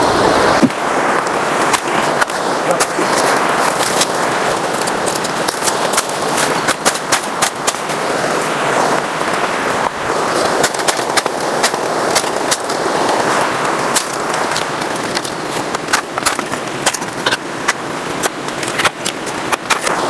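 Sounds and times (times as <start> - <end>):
waterfall rushing: 0.0 - 20.0
bamboo stems cracking and snapping: 1.7 - 8.0, 10.4 - 20.0.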